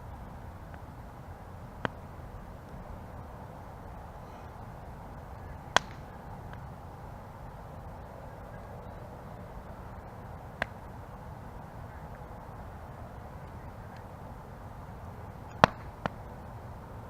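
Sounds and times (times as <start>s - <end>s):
campfire burning: 0.0s - 17.0s
burning wood popping: 5.6s - 6.7s, 15.5s - 16.2s.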